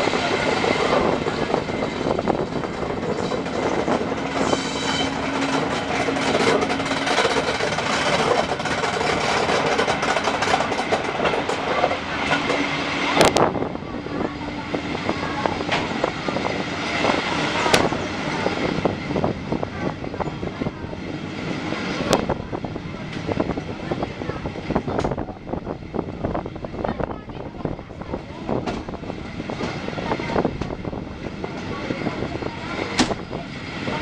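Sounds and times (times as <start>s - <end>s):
train wheels clattering on rails: 0.1s - 13.4s, 28.4s - 34.0s.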